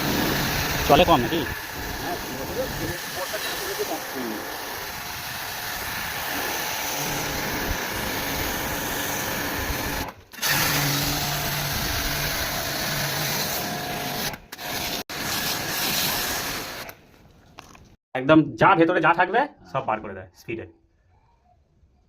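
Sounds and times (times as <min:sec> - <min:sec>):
hissing water jet: 0:00.0 - 0:09.4, 0:15.1 - 0:17.0
pump motor humming: 0:00.0 - 0:16.8.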